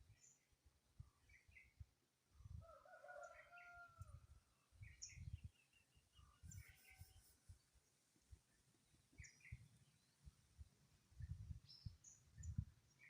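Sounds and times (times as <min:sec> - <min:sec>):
faint rooster crow: 0:02.5 - 0:04.4
small bird chirping: 0:04.8 - 0:07.7, 0:09.1 - 0:10.3.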